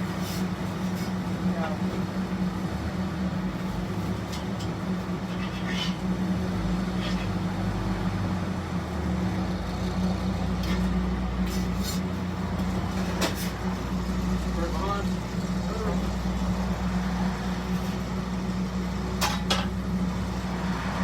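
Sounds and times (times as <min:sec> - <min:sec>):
faint hissing scrapes: 0:05.3 - 0:06.1.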